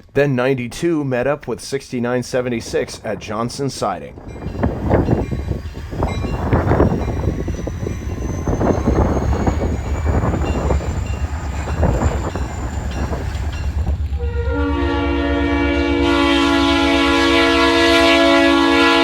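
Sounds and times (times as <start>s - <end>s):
diesel locomotive rumbling: 2.4s - 19.0s
locomotive air horn: 14.2s - 19.0s.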